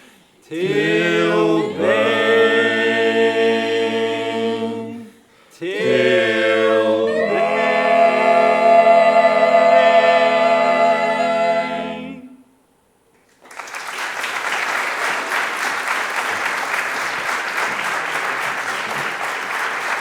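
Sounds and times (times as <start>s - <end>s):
a cappella choir holding chord: 0.4s - 12.6s
audience applause: 13.2s - 20.0s.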